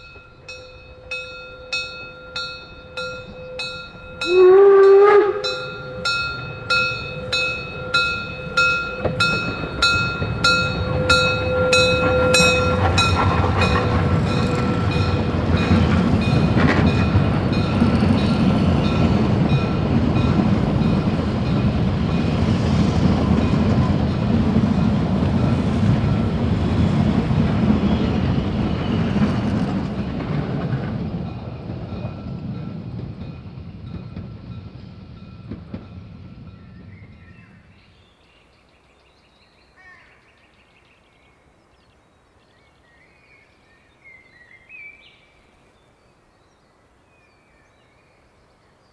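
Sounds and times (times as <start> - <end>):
train wheels clattering: 0.0 - 37.5
steam locomotive exhaust beats: 0.0 - 37.9.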